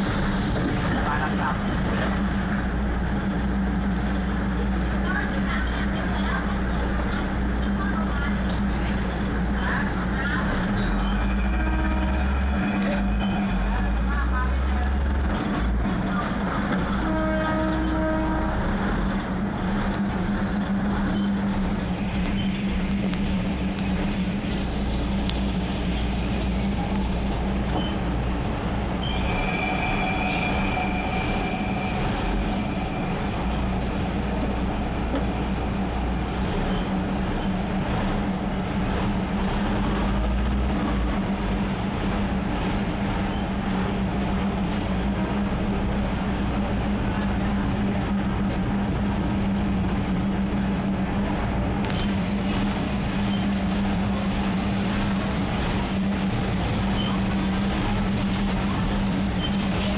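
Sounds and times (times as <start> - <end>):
train droning: 0.0 - 59.9
wheel squeal: 9.6 - 11.6, 29.0 - 33.7, 56.8 - 57.3, 59.3 - 59.9.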